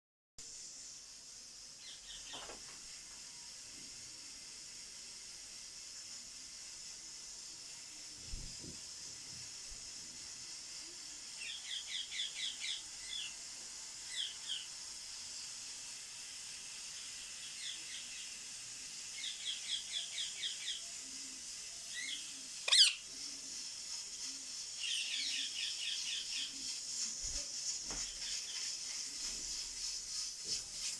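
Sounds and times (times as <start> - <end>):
steady high hiss: 0.4 - 30.9
parrot chirping: 21.9 - 23.1.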